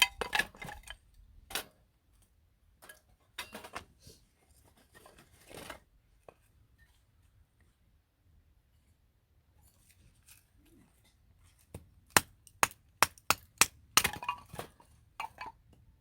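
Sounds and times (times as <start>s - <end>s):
scraping and rustling of handling: 3.6s - 7.8s.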